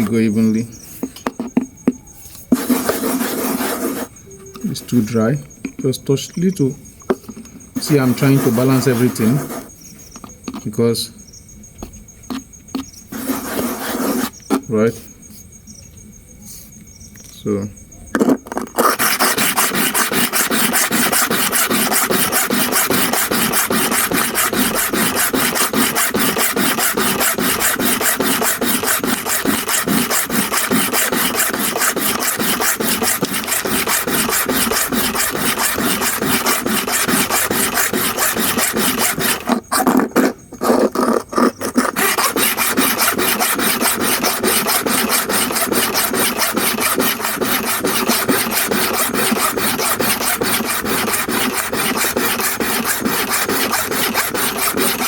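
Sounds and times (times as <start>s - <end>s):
blade scraping on sharpening stone: 18.7s - 40.1s, 40.9s - 55.0s.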